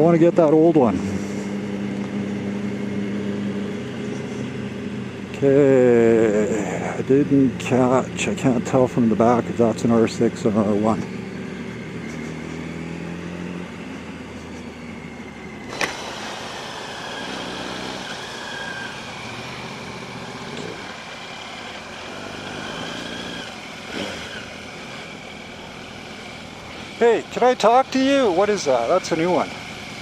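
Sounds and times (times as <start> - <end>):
motorcycle engine running: 0.0 - 30.0
wind and road noise: 0.0 - 30.0
sharp click: 15.7 - 16.0.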